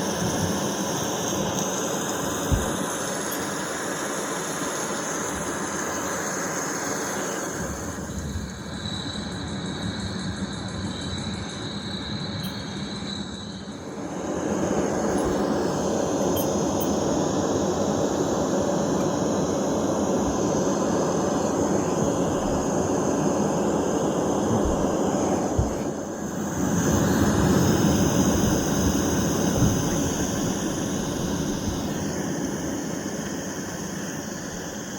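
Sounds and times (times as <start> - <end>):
steady noise from speaker: 13.7 - 27.1.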